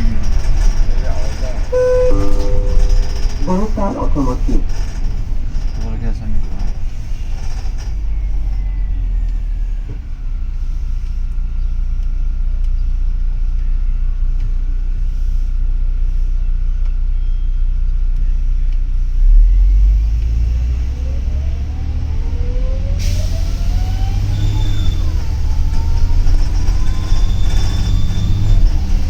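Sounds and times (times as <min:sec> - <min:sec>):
bus accelerating whine: 0:00.0 - 0:12.0, 0:19.0 - 0:29.0
bus engine rumble: 0:00.0 - 0:29.0.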